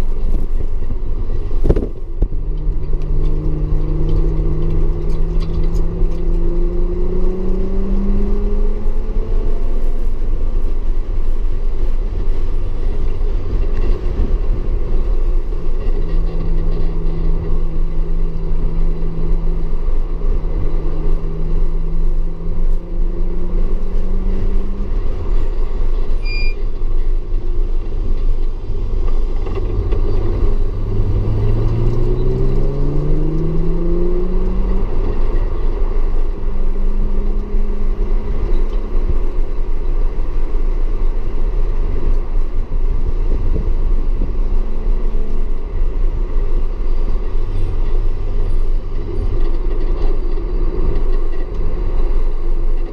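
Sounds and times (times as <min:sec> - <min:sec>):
road and rain noise: 0:00.0 - 0:52.9
car engine revving: 0:01.6 - 0:26.1, 0:28.9 - 0:40.4.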